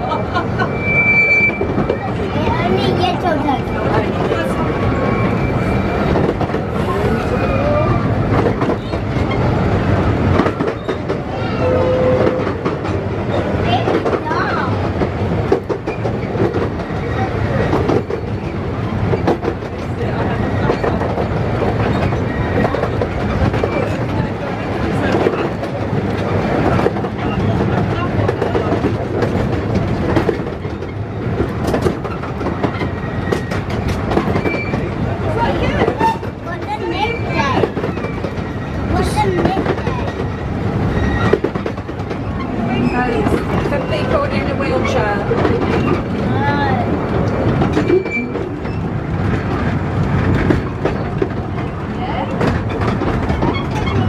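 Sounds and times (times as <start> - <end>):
rail clatter: 0.0 - 54.0
train rumble: 0.0 - 54.0
wheel squeals: 0.5 - 2.2, 3.9 - 6.3, 21.8 - 24.0, 32.0 - 35.0, 35.8 - 46.1, 47.7 - 48.9, 53.3 - 54.0.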